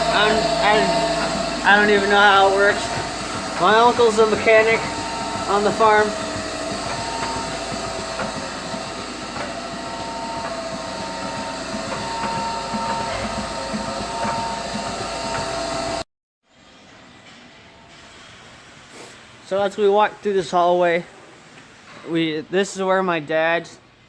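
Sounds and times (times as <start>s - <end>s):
machinery hissing hum: 0.0s - 16.0s.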